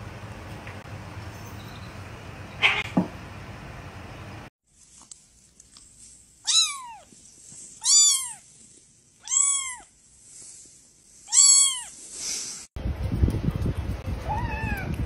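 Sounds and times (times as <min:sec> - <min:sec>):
kitten meowing: 0:06.4 - 0:07.1, 0:07.8 - 0:08.4, 0:09.2 - 0:09.9, 0:11.3 - 0:11.9.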